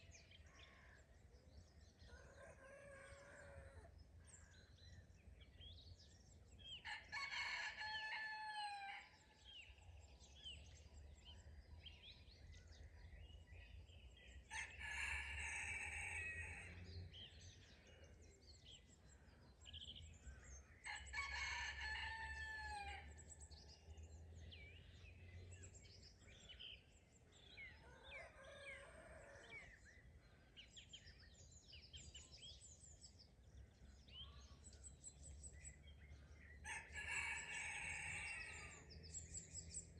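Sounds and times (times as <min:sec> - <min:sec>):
songbirds chirping: 0:00.0 - 0:39.9
rooster crowing: 0:36.6 - 0:38.8.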